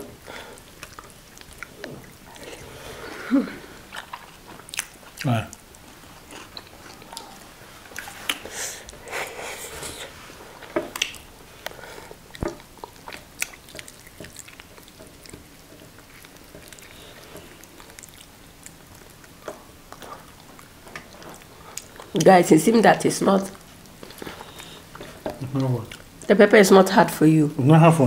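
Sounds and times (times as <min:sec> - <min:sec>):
chewing and mouth smacks: 0:00.6 - 0:02.7, 0:03.9 - 0:09.1, 0:10.6 - 0:22.3, 0:23.5 - 0:26.3.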